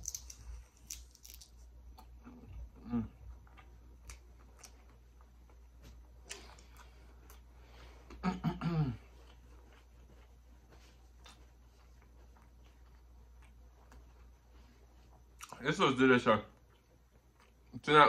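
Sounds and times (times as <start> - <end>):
crunchy chewing: 0.0 - 2.7, 9.1 - 15.6, 16.6 - 17.8
hummed mmm: 2.0 - 3.4.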